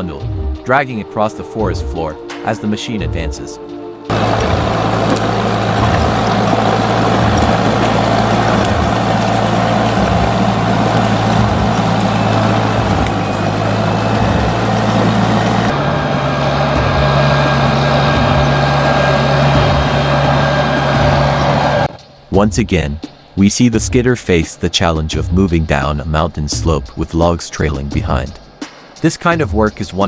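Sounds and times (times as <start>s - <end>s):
diesel engine running under load: 4.1s - 22.0s.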